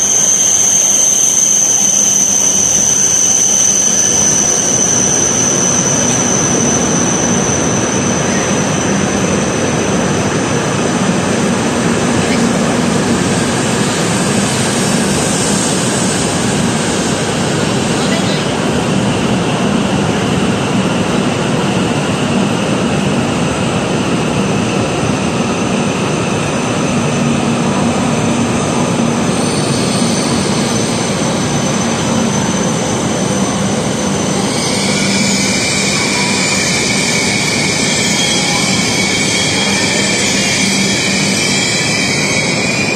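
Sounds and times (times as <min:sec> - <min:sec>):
train rushing noise: 0:00.0 - 0:42.9.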